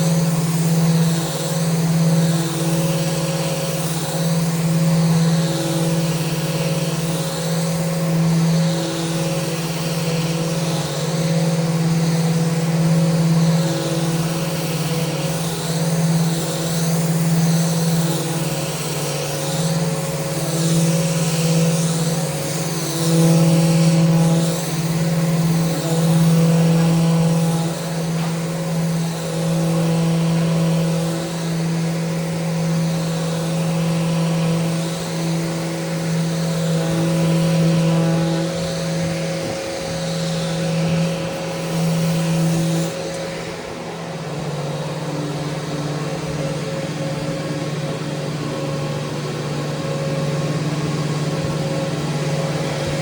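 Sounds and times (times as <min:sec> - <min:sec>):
electric sander motor humming: 0:00.0 - 0:53.0
sanding hiss: 0:00.0 - 0:53.0.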